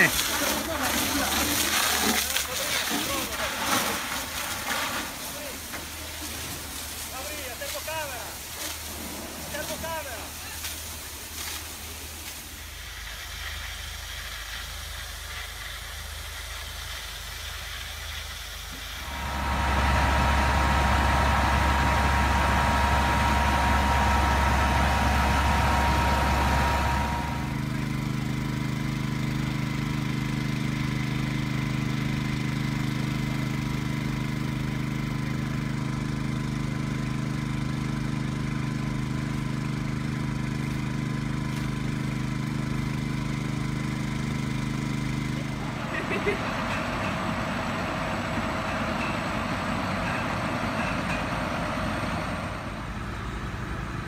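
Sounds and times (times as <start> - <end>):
rushing hiss with whine: 0.0 - 27.6
heavy engines and machinery: 0.0 - 54.0
low engine drone with hum: 17.5 - 54.0.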